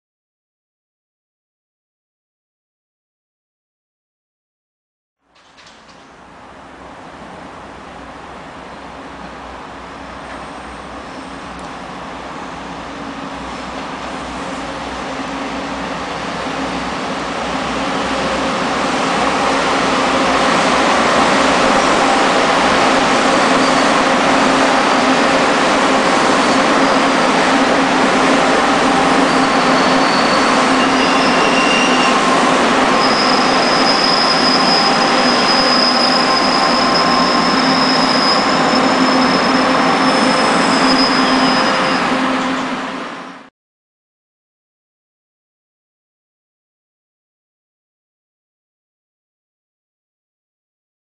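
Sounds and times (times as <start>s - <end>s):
train wheels rumbling on rail: 5.3s - 43.5s
high wheel squeal: 21.4s - 43.0s.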